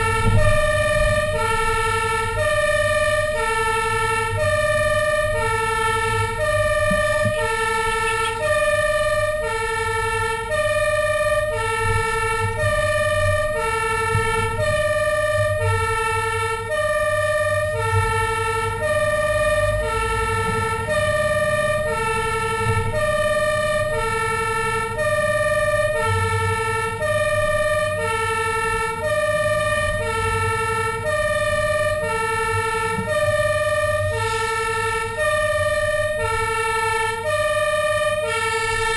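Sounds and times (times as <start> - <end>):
truck engine rumbling: 0.0 - 38.9
two-tone electronic siren: 0.0 - 38.9.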